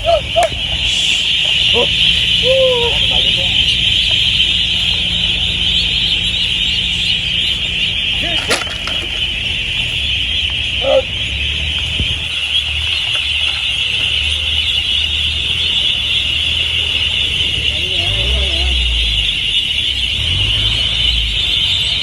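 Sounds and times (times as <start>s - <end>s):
boat engine humming: 0.0s - 22.0s
flock of ducks din: 0.0s - 22.0s
single duck calls: 10.8s - 11.2s.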